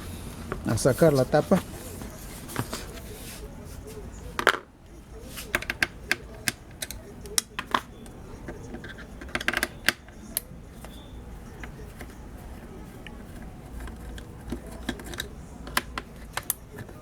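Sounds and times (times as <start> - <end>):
plastic casing clicks and taps: 5.5 - 11.0, 13.0 - 17.0.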